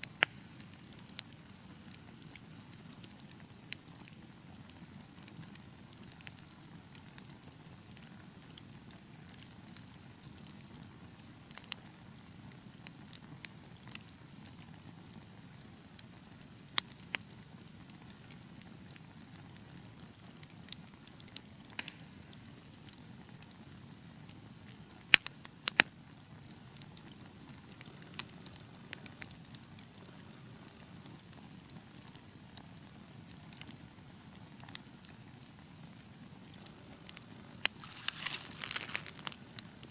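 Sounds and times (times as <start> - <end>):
sharp pops from fire: 0.0 - 1.3, 20.7 - 23.4, 25.0 - 26.0, 37.0 - 39.9
fire crackling: 0.0 - 39.9.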